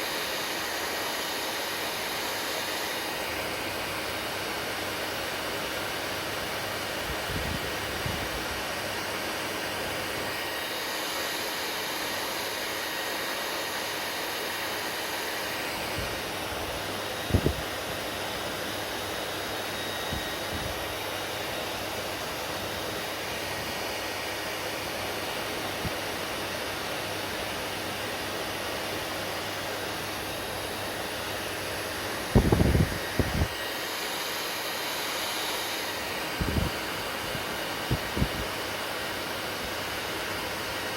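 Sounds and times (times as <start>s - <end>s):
hair dryer blowing: 0.0s - 40.9s.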